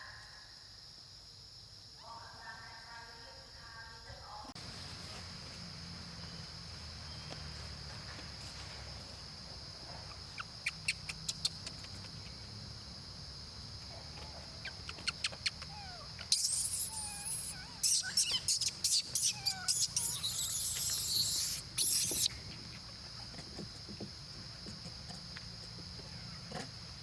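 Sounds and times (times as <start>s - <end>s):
insects droning: 0.0s - 27.0s
squeaky gliding calls: 14.6s - 22.3s.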